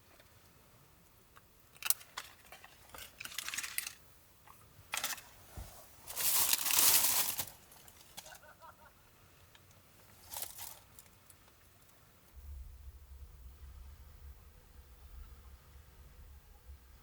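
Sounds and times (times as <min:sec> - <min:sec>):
rustling and crinkling: 0:01.8 - 0:08.5, 0:10.0 - 0:12.0.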